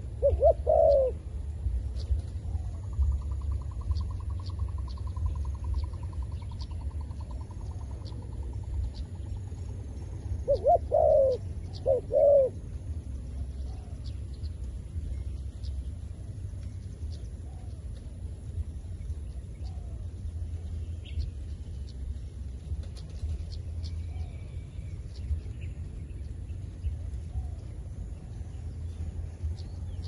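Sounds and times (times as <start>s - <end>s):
dove staccato trill: 0.0s - 1.2s, 2.9s - 12.7s
dove cooing: 0.0s - 14.6s
steady low rumble: 0.0s - 30.0s.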